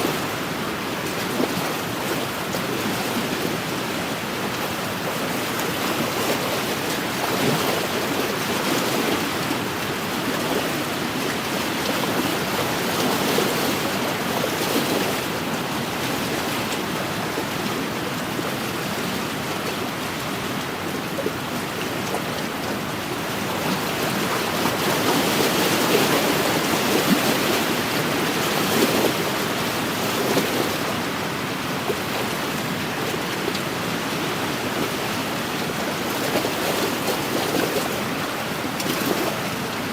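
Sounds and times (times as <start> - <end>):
waves washing against the shore: 0.0 - 39.9
wind: 0.0 - 39.9.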